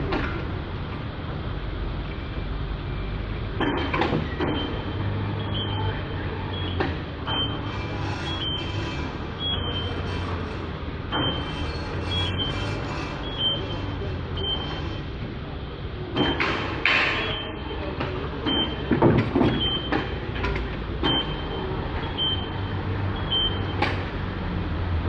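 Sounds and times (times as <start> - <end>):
low machine hum: 0.0 - 25.0
high warning beep: 4.4 - 10.4, 11.1 - 15.0, 17.1 - 17.8, 18.4 - 18.9, 21.0 - 23.8
metal clanks and knocks: 6.7 - 15.3, 16.2 - 17.4, 18.0 - 21.4.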